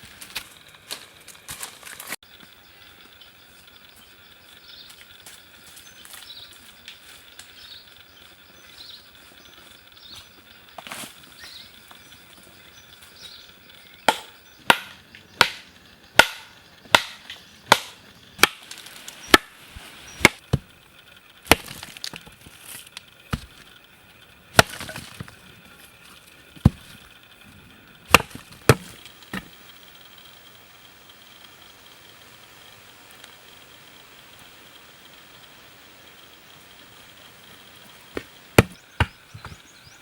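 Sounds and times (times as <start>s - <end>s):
blade chopping wood: 14.1s - 20.7s, 21.5s - 22.5s, 23.3s - 23.7s, 24.5s - 25.4s, 26.6s - 27.0s, 28.1s - 29.5s, 38.1s - 39.6s.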